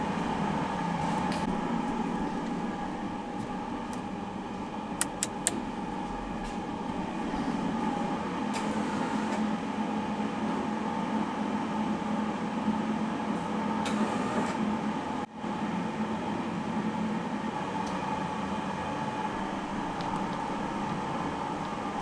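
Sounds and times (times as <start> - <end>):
faint clicks: 1.2 - 8.0, 19.4 - 22.0.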